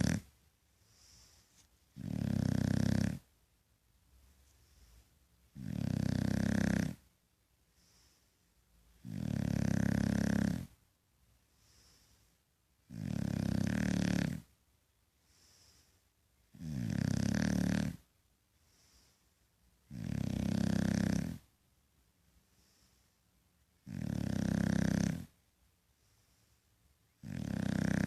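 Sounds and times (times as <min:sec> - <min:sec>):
dog snoring loudly: 0:00.0 - 0:00.3, 0:02.0 - 0:03.3, 0:05.5 - 0:07.0, 0:09.0 - 0:10.8, 0:12.8 - 0:14.5, 0:16.5 - 0:18.0, 0:19.9 - 0:21.5, 0:23.8 - 0:25.3, 0:27.2 - 0:28.0
faint breathing: 0:00.7 - 0:02.0, 0:04.4 - 0:05.3, 0:07.6 - 0:08.7, 0:11.4 - 0:12.6, 0:15.1 - 0:16.3, 0:18.5 - 0:19.6, 0:22.3 - 0:23.5, 0:25.2 - 0:27.0.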